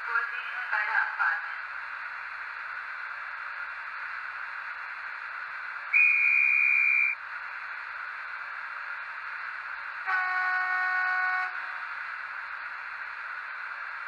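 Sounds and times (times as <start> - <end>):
high train whistle blast: 6.0 - 7.2, 10.1 - 11.7.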